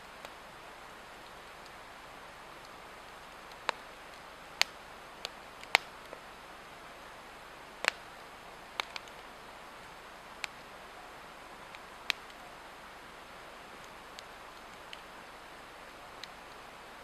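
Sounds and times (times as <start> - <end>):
burning log crackling: 0.0 - 17.0
sharp pops of fire: 3.4 - 6.2.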